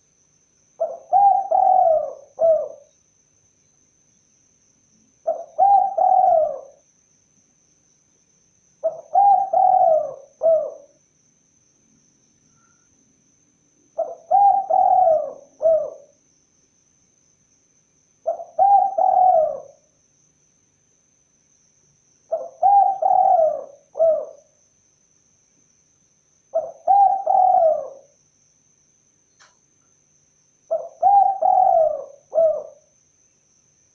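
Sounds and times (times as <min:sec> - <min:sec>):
dove cooing: 0:00.8 - 0:02.9, 0:05.2 - 0:06.8, 0:08.8 - 0:10.9, 0:14.0 - 0:16.1, 0:18.2 - 0:19.8, 0:22.3 - 0:24.5, 0:26.5 - 0:28.1, 0:30.7 - 0:32.9.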